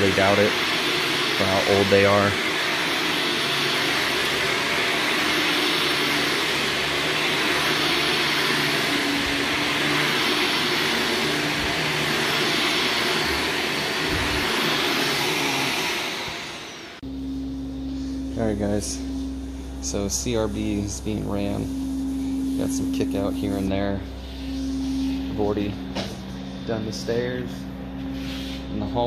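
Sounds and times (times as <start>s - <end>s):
carpet cleaner suction hiss: 0.0s - 17.1s
low machine hum: 0.0s - 29.0s.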